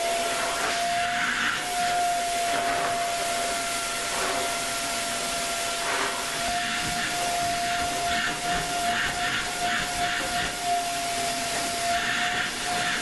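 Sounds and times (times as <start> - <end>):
vacuum cleaner running: 0.0 - 13.0
nozzle air rush on upholstery: 5.7 - 13.0.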